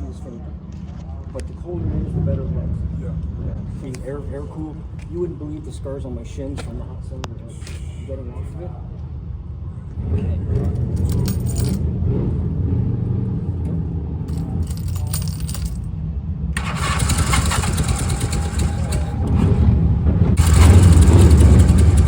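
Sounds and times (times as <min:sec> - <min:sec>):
motorcycle engine running: 0:16.6 - 0:22.0.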